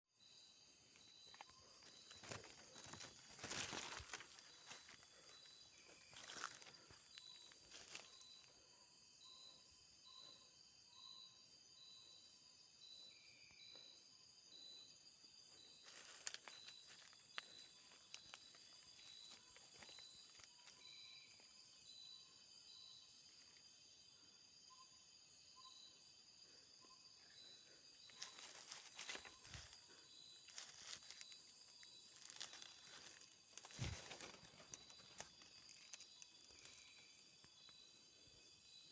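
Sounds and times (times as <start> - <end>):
insect chorus: 0.1 - 38.9.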